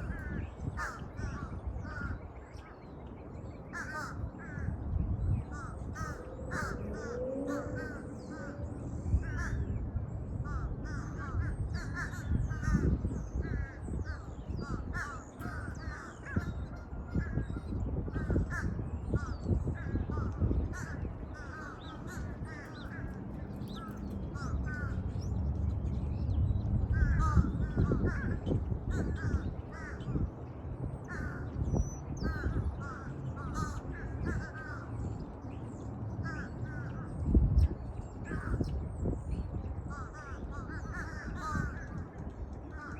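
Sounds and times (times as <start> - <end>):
crows cawing: 0.0 - 2.2, 3.7 - 4.8, 5.5 - 9.7, 10.4 - 25.2, 26.9 - 30.2, 31.0 - 31.6, 32.2 - 35.1, 36.2 - 37.2, 39.9 - 42.9.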